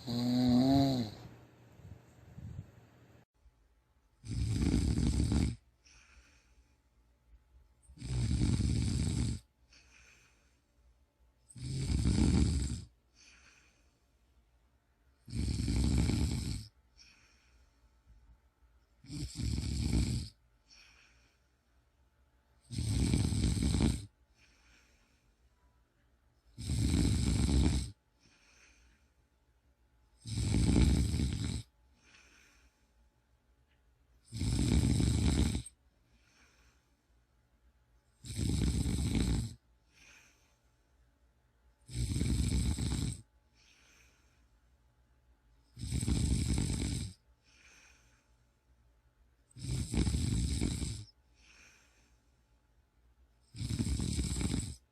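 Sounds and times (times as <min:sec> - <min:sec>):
person snoring: 0:00.0 - 0:01.3, 0:04.2 - 0:06.6, 0:07.9 - 0:10.5, 0:11.5 - 0:13.8, 0:15.2 - 0:17.6, 0:19.0 - 0:21.4, 0:22.6 - 0:24.9, 0:26.5 - 0:28.9, 0:30.2 - 0:32.7, 0:34.2 - 0:36.8, 0:38.2 - 0:40.4, 0:41.8 - 0:44.2, 0:45.7 - 0:48.1, 0:49.5 - 0:52.1, 0:53.5 - 0:54.9
faint breath: 0:05.7 - 0:07.1, 0:09.6 - 0:11.0, 0:13.0 - 0:14.5, 0:16.8 - 0:18.4, 0:20.6 - 0:21.9, 0:24.1 - 0:25.8, 0:28.1 - 0:29.4, 0:31.9 - 0:33.2, 0:35.7 - 0:37.3, 0:39.8 - 0:41.1, 0:43.4 - 0:44.8, 0:47.3 - 0:48.8, 0:51.0 - 0:52.8.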